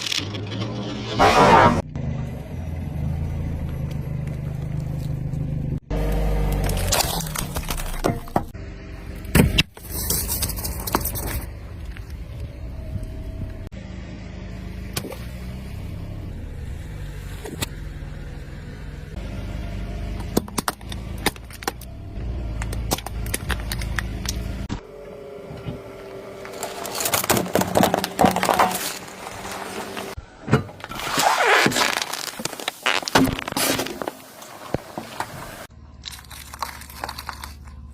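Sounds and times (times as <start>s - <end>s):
car engine and tyre rumble: 0.0s - 37.9s
objects crunching under tyre: 3.6s - 8.6s, 9.2s - 12.7s, 20.1s - 24.9s, 25.6s - 37.9s
sharp cracks and pops: 22.6s - 24.8s, 30.8s - 34.9s, 36.0s - 37.9s.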